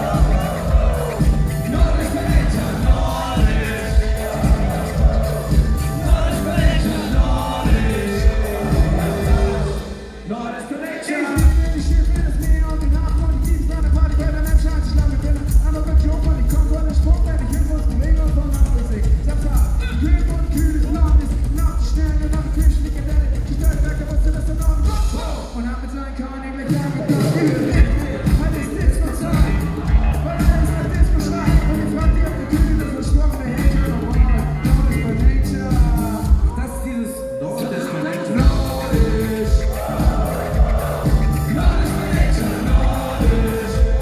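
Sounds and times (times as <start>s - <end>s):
kick drum beat: 0.0s - 9.8s, 11.4s - 25.2s, 27.8s - 36.6s, 38.4s - 44.0s
held bass: 0.0s - 10.1s, 27.7s - 36.8s, 38.4s - 44.0s
person singing: 0.0s - 15.2s, 26.7s - 44.0s
live hip-hop band playing: 0.0s - 44.0s.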